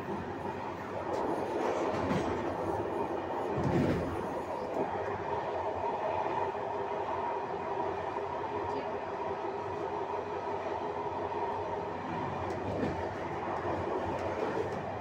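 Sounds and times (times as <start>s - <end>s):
train wheels rumbling on rails: 0.0s - 6.8s, 11.7s - 15.0s.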